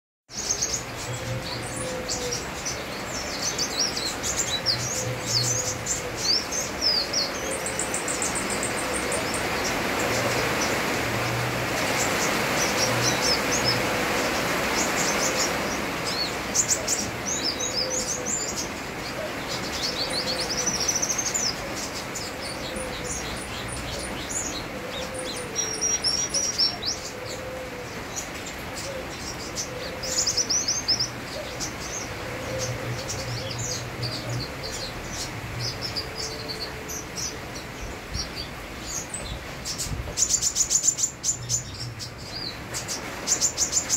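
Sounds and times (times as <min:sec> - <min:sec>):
rain hiss: 0:00.3 - 0:43.9.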